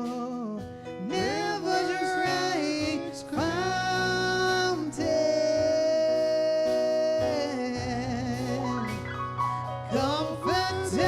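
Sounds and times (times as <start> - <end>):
worship band accompaniment: 0.0 - 11.0.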